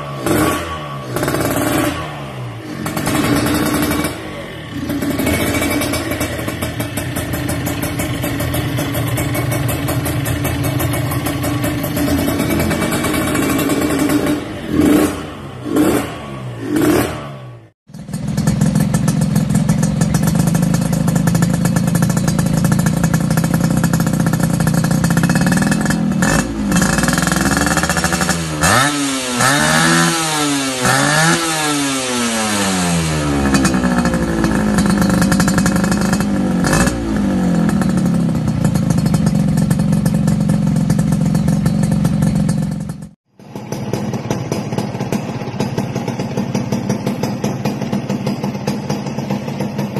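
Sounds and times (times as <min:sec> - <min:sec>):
two-stroke motorcycle engine revving: 0:00.0 - 0:49.9.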